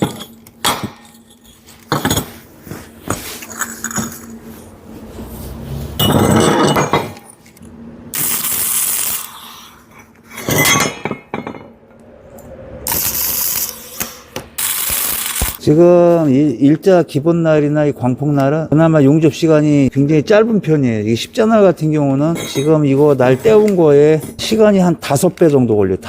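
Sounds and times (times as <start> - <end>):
steel parts clinking: 0.0 - 2.5, 10.2 - 11.7.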